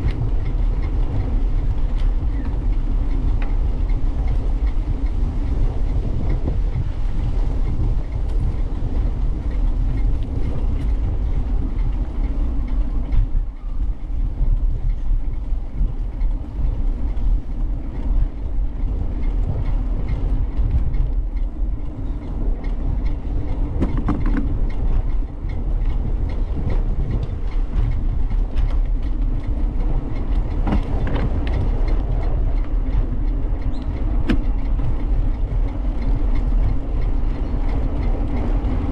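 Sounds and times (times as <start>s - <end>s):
bicycle rolling noise: 0.0s - 38.9s
wind rumble: 0.0s - 38.9s
small knocks and rattles: 21.9s - 25.2s, 25.8s - 32.6s.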